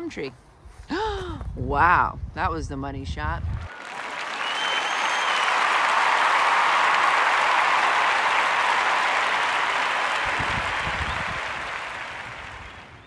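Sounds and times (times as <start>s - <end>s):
crowd applauding: 3.6s - 13.0s.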